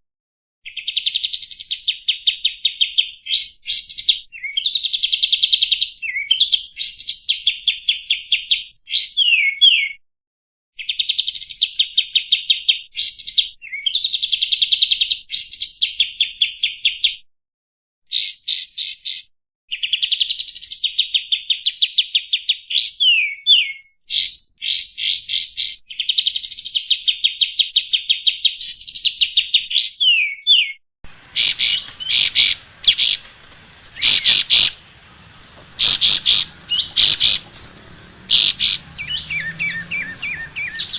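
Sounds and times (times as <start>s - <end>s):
loud bird chirps: 0.6s - 10.0s, 10.8s - 17.2s, 18.1s - 40.9s
songbird singing trills: 0.7s - 10.0s, 18.1s - 40.9s
background hiss: 31.1s - 38.6s.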